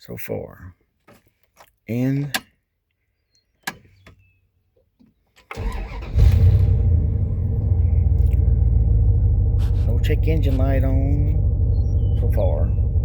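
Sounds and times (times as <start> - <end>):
starter motor cranking: 5.6 - 7.0
engine running steadily: 5.8 - 13.0.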